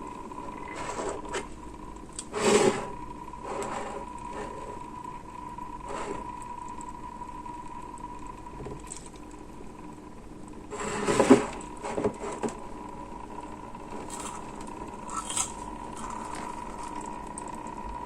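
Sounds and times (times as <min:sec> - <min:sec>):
pump whining: 0:13.8 - 0:18.0.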